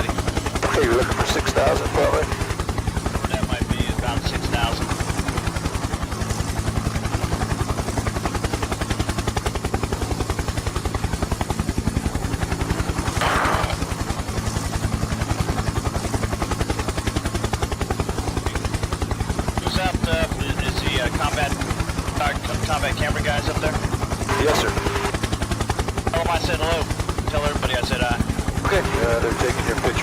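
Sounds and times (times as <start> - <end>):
helicopter rotor blades thumping: 0.0 - 20.1
helicopter engine drone: 0.0 - 30.0.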